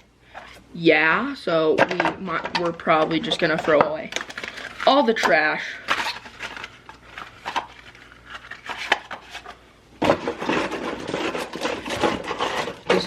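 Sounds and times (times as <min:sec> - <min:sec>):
packaging clicks and knocks: 0:01.8 - 0:13.0
packaging rustling: 0:03.1 - 0:13.0.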